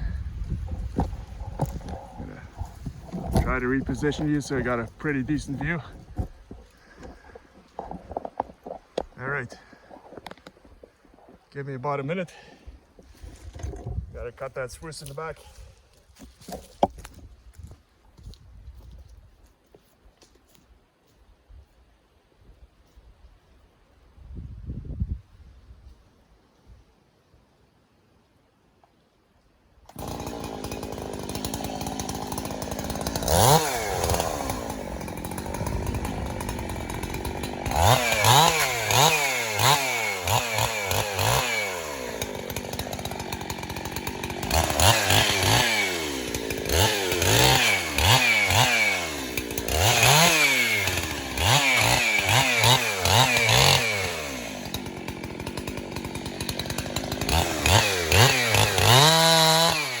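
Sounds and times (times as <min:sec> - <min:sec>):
chainsaw revving and cutting wood: 0:00.0 - 0:11.5, 0:12.1 - 0:17.2, 0:29.9 - 1:00.0.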